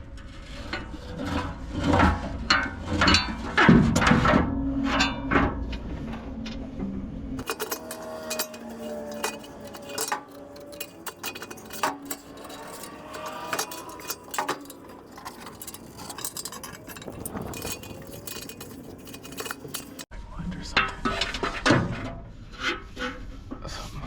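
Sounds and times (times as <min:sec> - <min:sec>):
metal tools clinking on metal: 0:07.4 - 0:20.1.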